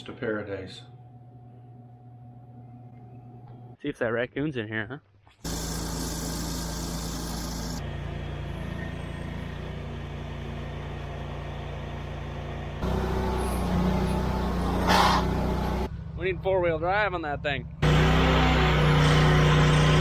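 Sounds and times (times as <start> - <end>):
vehicle engine running: 5.5 - 16.4, 17.2 - 20.0.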